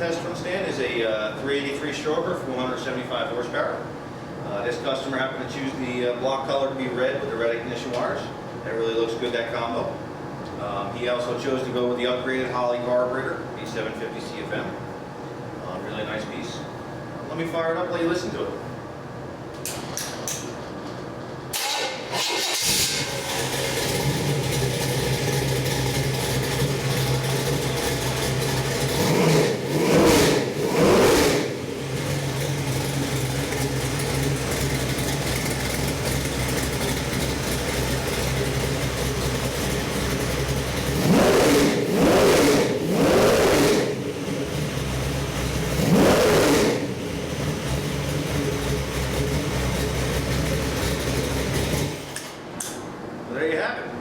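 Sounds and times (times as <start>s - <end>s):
engine cranking and starting: 21.5s - 43.8s
engine idling: 21.6s - 52.4s.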